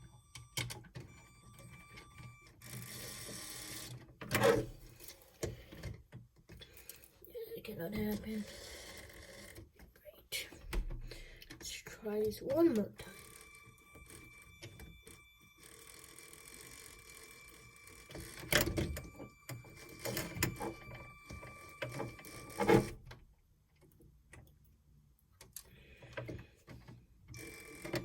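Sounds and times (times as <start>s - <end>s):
toy motor whining: 13.0s - 22.9s.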